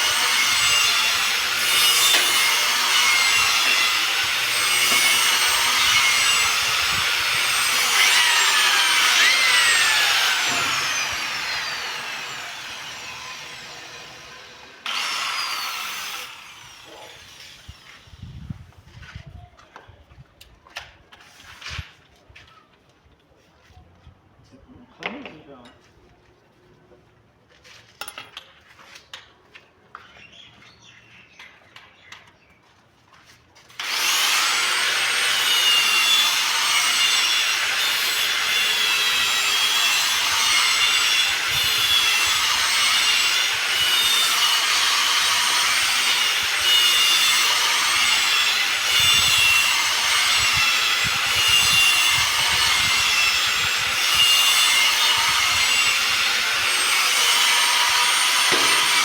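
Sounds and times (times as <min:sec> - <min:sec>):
power tool grinding stone: 0:00.0 - 0:18.1, 0:33.8 - 0:59.0.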